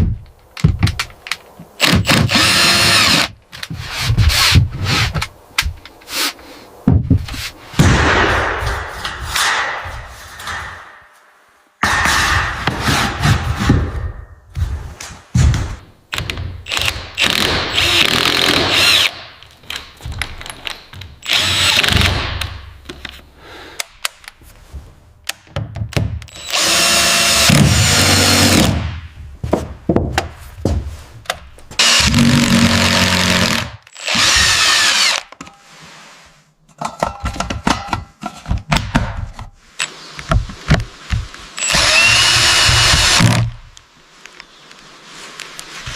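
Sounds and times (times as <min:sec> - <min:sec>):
knocks and clatter: 0:00.0 - 0:02.4, 0:06.8 - 0:11.1, 0:11.8 - 0:23.1, 0:36.7 - 0:39.5
power drill running: 0:01.8 - 0:03.3, 0:16.7 - 0:19.1, 0:21.2 - 0:21.9, 0:26.3 - 0:28.6, 0:31.8 - 0:35.2, 0:41.6 - 0:43.4.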